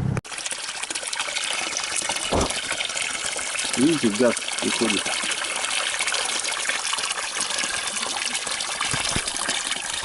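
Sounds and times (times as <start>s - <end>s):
splashing water: 0.4s - 10.0s
low thumps: 2.3s - 2.6s.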